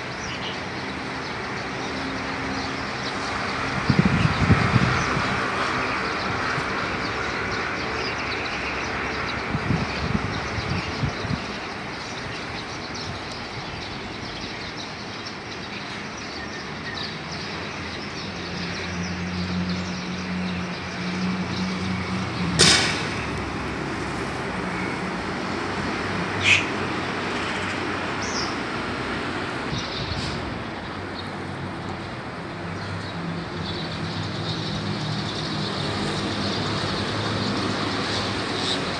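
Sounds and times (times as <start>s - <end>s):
traffic rumble: 0.0s - 38.9s
sharp knock: 22.6s - 23.2s.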